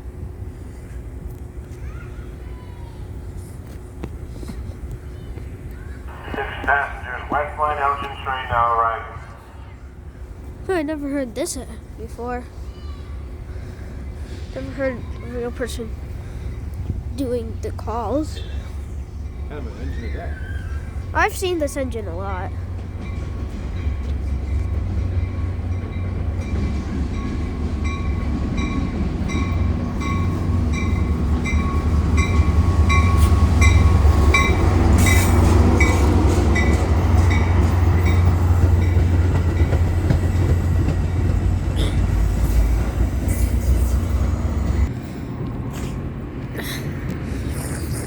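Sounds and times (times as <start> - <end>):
diesel train locomotive rumble: 0.0 - 48.0
train bell ringing: 21.4 - 39.9.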